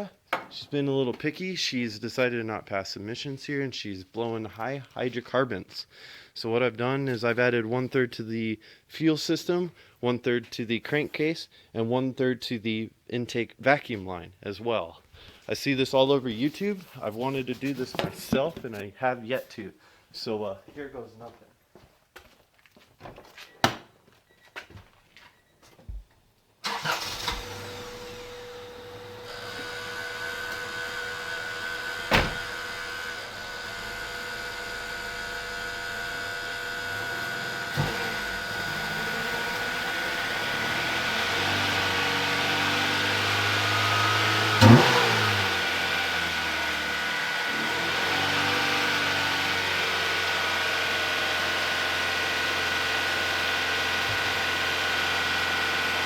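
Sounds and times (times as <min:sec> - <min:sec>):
car engine running: 0:26.7 - 0:56.0.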